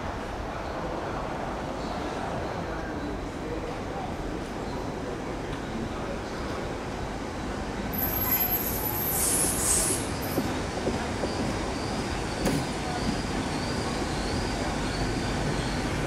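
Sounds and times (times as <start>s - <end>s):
train wheels squealing: 7.9s - 16.0s.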